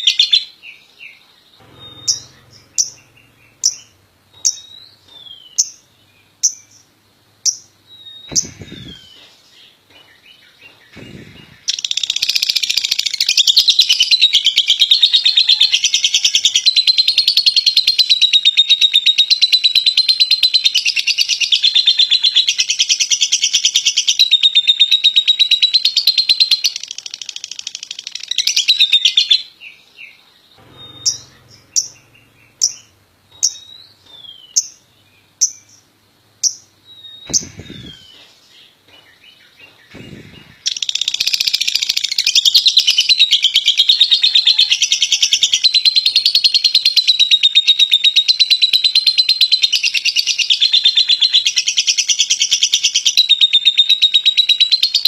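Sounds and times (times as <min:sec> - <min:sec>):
lovebird chirping: 0:01.1 - 0:09.7, 0:10.8 - 0:14.4, 0:30.6 - 0:38.3, 0:39.7 - 0:48.6
lovebird rapid chatter: 0:08.3 - 0:09.2, 0:37.3 - 0:38.2, 0:39.9 - 0:42.5.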